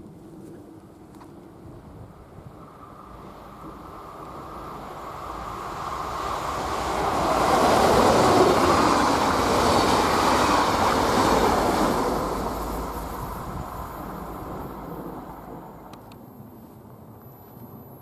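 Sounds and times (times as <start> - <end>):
train passing: 1.7 - 18.0.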